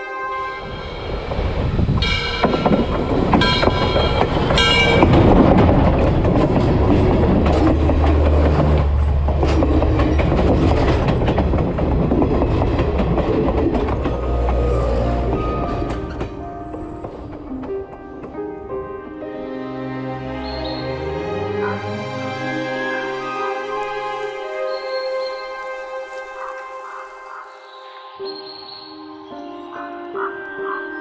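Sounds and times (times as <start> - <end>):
train horn blasts: 0.0 - 5.3, 14.1 - 17.1, 19.3 - 27.9
train wheels clattering on rails: 0.9 - 19.2.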